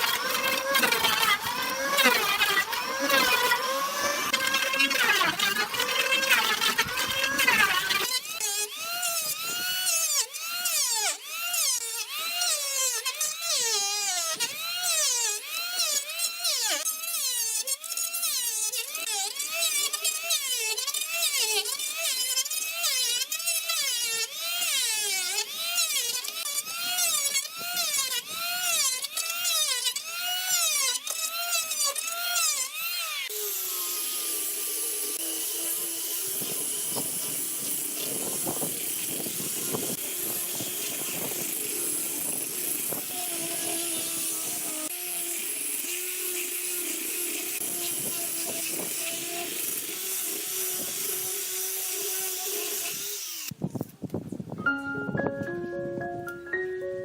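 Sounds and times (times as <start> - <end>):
tool strokes squealing on bamboo: 0.0 - 11.7
small power tool whirring: 0.0 - 54.6.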